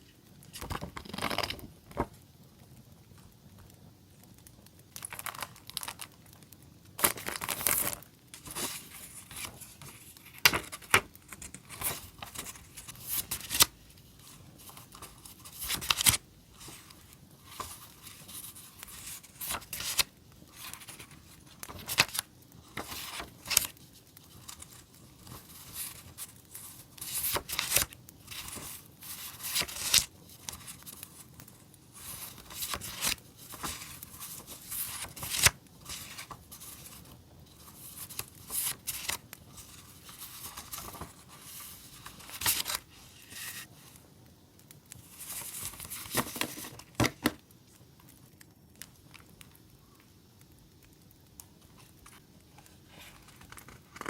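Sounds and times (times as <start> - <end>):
packaging rustling and tearing: 7.0 - 43.9.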